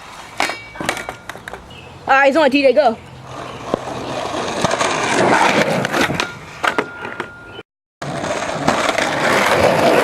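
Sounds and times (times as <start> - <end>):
skateboard wheels rolling on pavement: 0.0 - 10.0
skateboard clacks: 3.3 - 7.3, 8.1 - 10.0.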